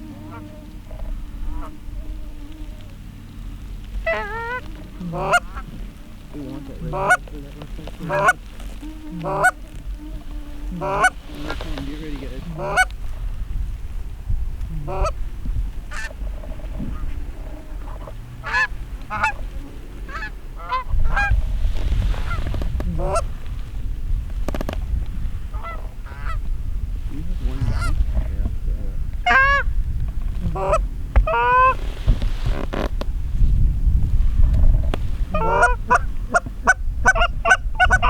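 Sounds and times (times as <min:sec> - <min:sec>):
geese honking and clucking: 0:00.0 - 0:13.1, 0:14.7 - 0:15.2, 0:15.8 - 0:23.7, 0:24.6 - 0:26.5, 0:27.3 - 0:28.5, 0:29.2 - 0:29.7, 0:30.3 - 0:32.5, 0:34.8 - 0:38.0
low rumble: 0:00.0 - 0:38.0.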